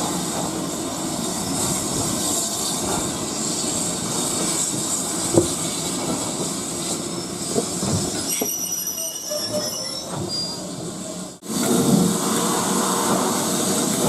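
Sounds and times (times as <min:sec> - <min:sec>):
railway carriages rumbling: 0:00.0 - 0:14.0
high wheel squeal: 0:07.0 - 0:10.8.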